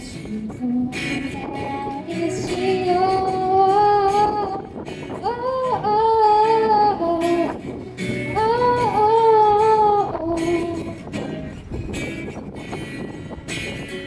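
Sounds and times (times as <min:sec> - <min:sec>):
woman singing: 0:00.0 - 0:11.1
guitar accompaniment: 0:00.0 - 0:14.0.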